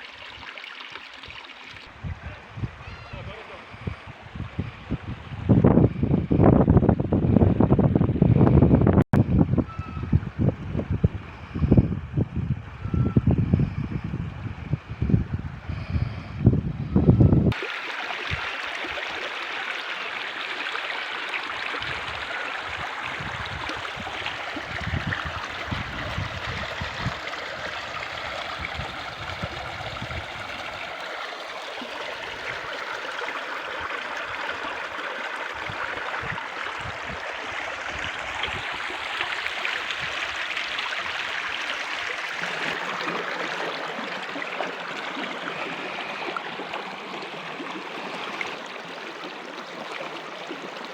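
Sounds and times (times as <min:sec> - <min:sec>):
stream of water running: 0:00.0 - 0:50.9
wind rumbling on microphone: 0:01.8 - 0:17.6, 0:21.6 - 0:31.0, 0:33.7 - 0:43.1.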